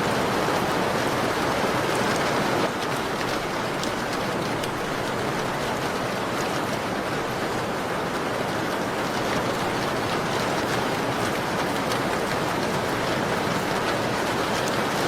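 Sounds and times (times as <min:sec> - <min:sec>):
rain on a window pane: 0:00.0 - 0:15.0
raindrops ticking: 0:02.7 - 0:05.9.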